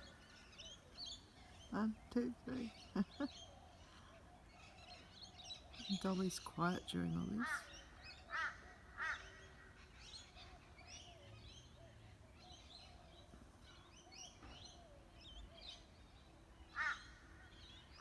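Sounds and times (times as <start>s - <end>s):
small birds chirping: 0.0s - 18.0s
crow cawing: 7.4s - 9.9s, 16.8s - 17.5s.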